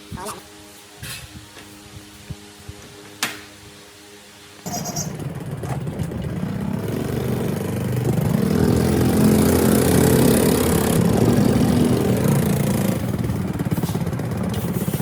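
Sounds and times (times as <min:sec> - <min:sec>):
machine motor running: 0:04.7 - 0:15.0.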